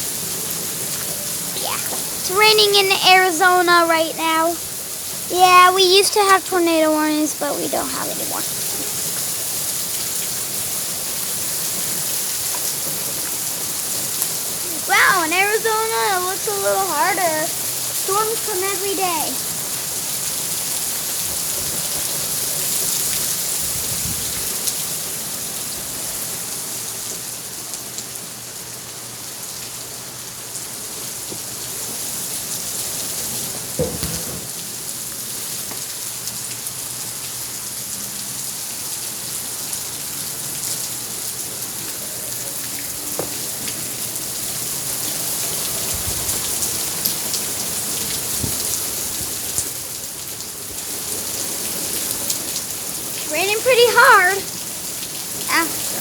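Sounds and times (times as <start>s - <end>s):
heavy rain falling: 0.0s - 56.0s
sharp knocks: 33.8s - 34.5s.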